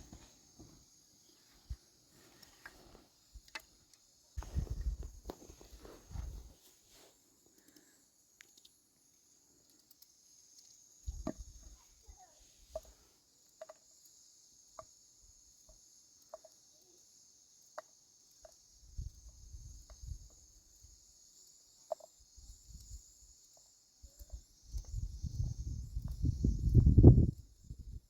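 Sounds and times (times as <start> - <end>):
crickets chirring: 0.0 - 28.0
small clicks: 7.5 - 8.8, 9.6 - 11.5.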